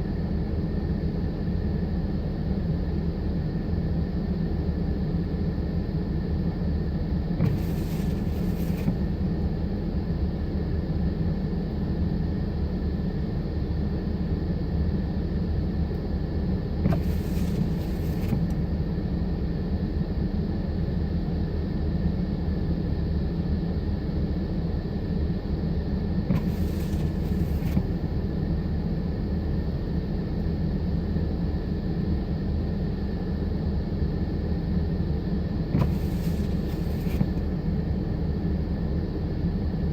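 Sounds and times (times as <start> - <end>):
faint whine: 0.0 - 39.9.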